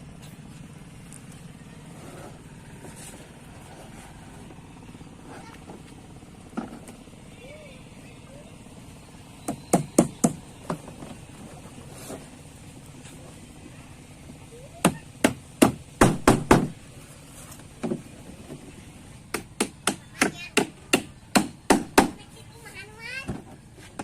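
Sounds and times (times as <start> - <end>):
hand tool striking frame: 9.5 - 11.0, 14.8 - 16.8.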